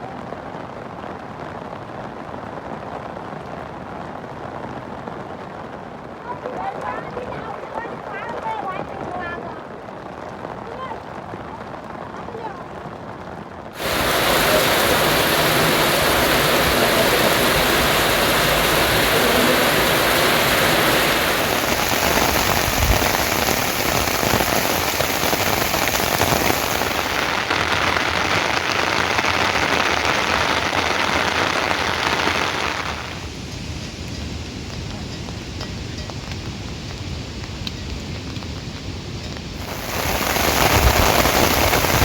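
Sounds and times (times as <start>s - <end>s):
rain pouring down: 0.0s - 42.0s.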